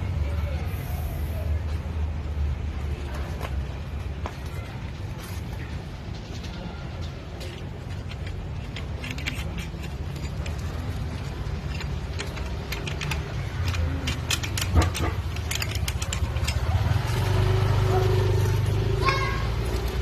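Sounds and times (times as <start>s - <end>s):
small metal parts clinking: 6.4s - 18.9s.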